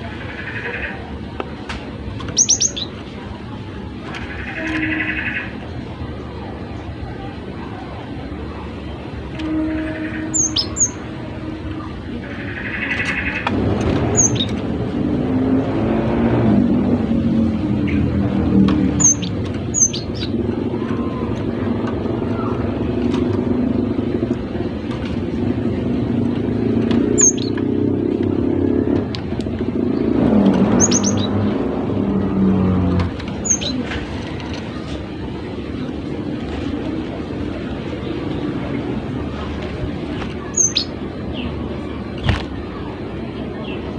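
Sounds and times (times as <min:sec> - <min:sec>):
low vehicle rumble: 0:00.0 - 0:43.9
bird chirping: 0:02.3 - 0:02.9, 0:10.1 - 0:11.0, 0:14.1 - 0:14.6, 0:19.0 - 0:20.4, 0:27.1 - 0:27.6, 0:30.7 - 0:31.4, 0:33.4 - 0:33.8, 0:40.5 - 0:41.5.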